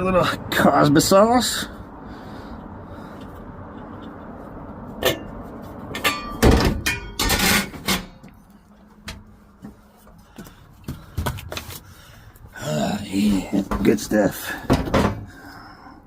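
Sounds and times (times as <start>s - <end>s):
metal clunks and thuds: 5.9s - 8.2s, 13.6s - 15.4s.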